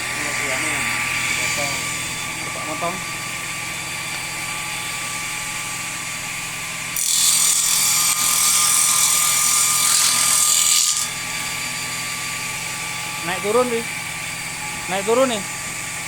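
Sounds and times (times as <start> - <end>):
table saw motor running: 0.0 - 16.0
saw blade cutting wood: 7.0 - 12.5.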